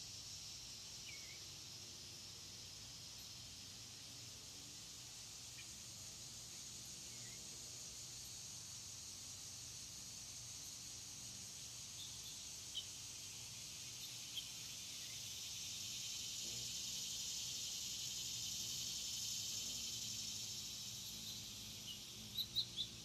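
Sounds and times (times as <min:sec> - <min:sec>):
high-pitched insect chorus: 0:00.0 - 0:23.0
faint bird chirps: 0:01.0 - 0:01.6, 0:20.4 - 0:23.0.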